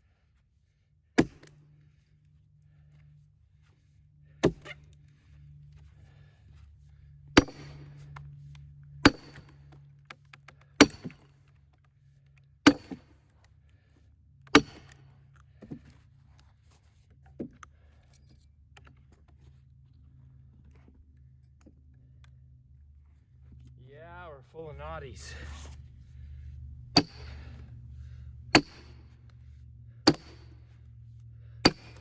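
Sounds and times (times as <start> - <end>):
hammer striking steel wedge: 1.2 - 1.5, 7.4 - 7.8, 12.7 - 13.0, 14.6 - 14.9, 27.0 - 27.4, 28.6 - 29.0, 30.1 - 30.4, 31.6 - 32.0.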